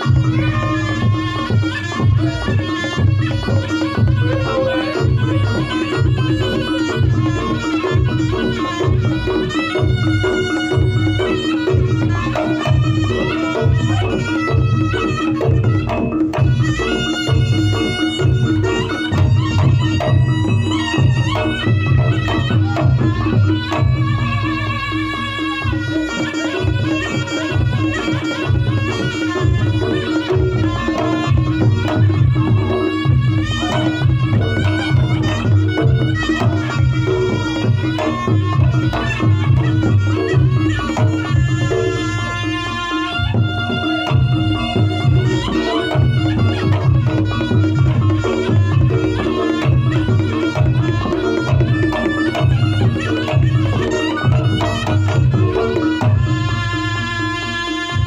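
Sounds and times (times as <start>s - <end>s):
quick hand drum strokes: 0.0s - 24.9s, 25.5s - 56.6s
reedy shawm melody: 0.0s - 58.0s.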